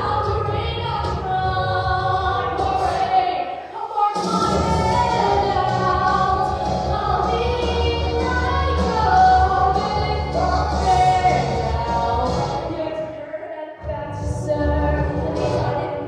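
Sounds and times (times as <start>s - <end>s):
girl singing show tune: 0.0s - 16.0s
backing music with bass: 4.2s - 13.0s, 13.8s - 16.0s.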